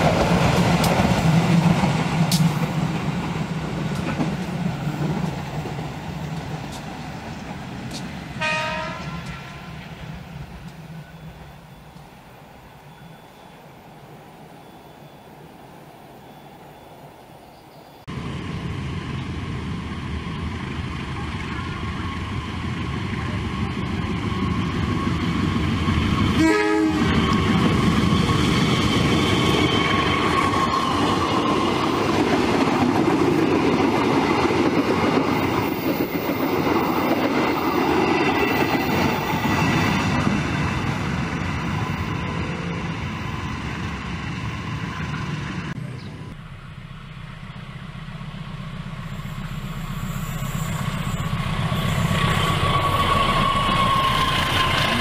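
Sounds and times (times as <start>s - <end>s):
train engine and wheels rumbling: 0.0s - 55.0s
locomotive horn: 8.4s - 9.9s, 26.4s - 27.5s.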